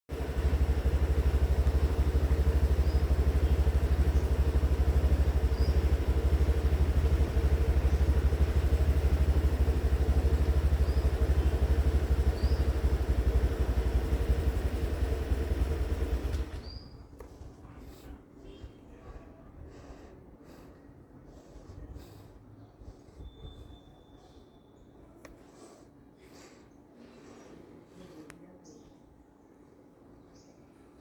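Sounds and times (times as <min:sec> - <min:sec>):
engine idling low rumble: 0:00.1 - 0:23.7
faint high chirps: 0:00.2 - 0:14.8.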